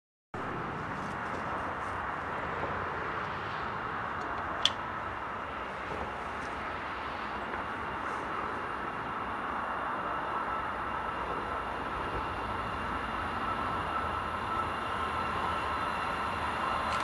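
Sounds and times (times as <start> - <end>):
distant vehicle noise: 0.4 - 17.0.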